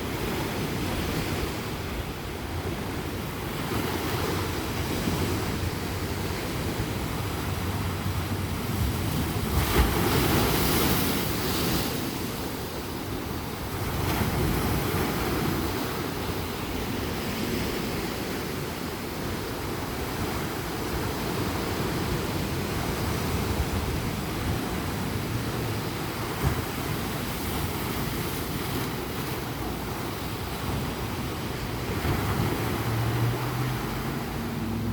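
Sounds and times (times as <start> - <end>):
ocean surf washing onto beach: 0.0 - 34.9
wave breaking: 30.6 - 34.9.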